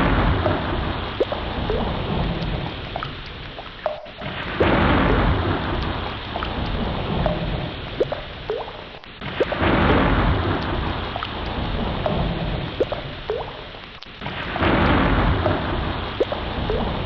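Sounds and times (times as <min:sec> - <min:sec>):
ocean waves washing in: 0:00.0 - 0:17.0.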